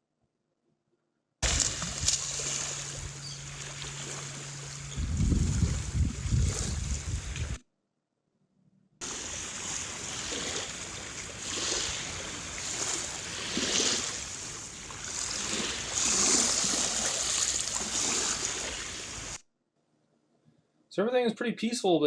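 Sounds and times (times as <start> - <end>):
ocean water washing: 1.4 - 7.6, 9.0 - 19.4.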